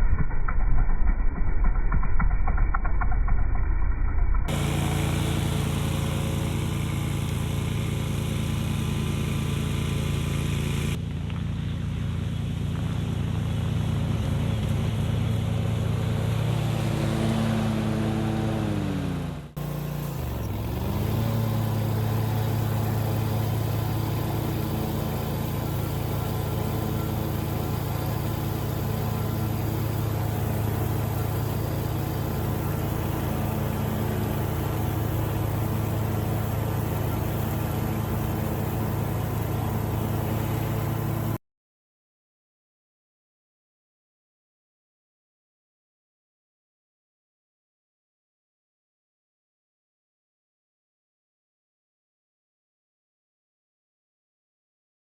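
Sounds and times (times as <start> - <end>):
mower engine running: 0.0 - 41.4.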